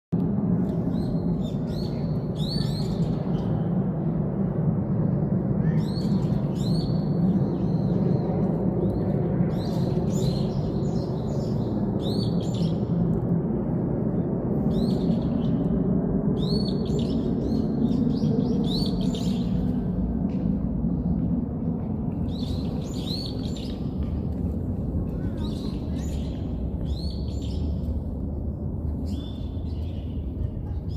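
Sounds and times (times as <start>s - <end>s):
low background rumble: 0.2s - 30.9s
birds chirping: 22.2s - 24.1s.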